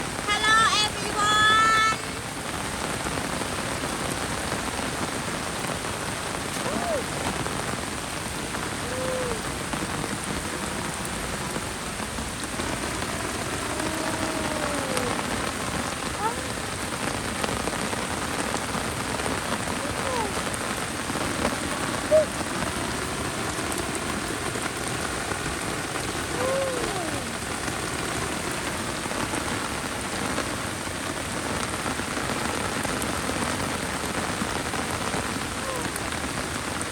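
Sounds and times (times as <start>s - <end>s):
heavy rain falling: 0.0s - 36.9s
faint rising and falling calls: 13.5s - 15.7s.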